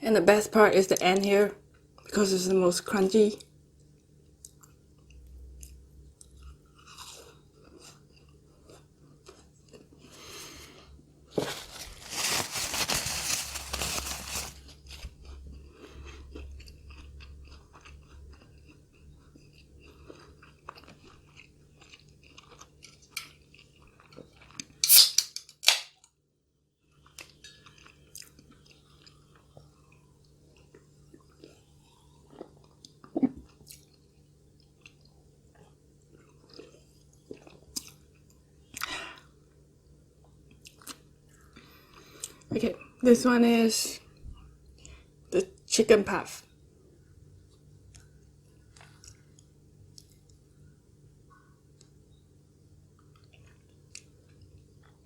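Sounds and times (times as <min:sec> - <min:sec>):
soft chewing: 0:03.3 - 0:24.8, 0:26.8 - 0:43.1, 0:44.0 - 0:45.7, 0:46.4 - 0:55.0
crunching crisp pastry: 0:04.4 - 0:26.1, 0:26.8 - 0:39.2.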